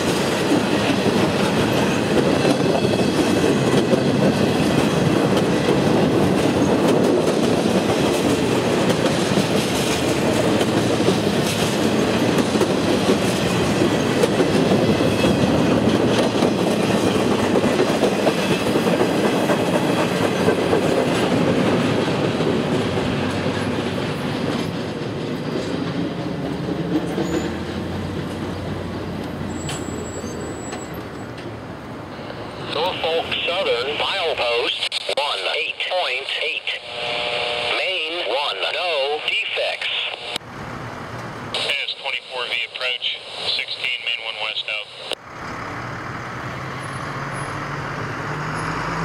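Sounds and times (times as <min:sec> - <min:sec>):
train wheels clattering on rails: 0:00.0 - 0:31.8.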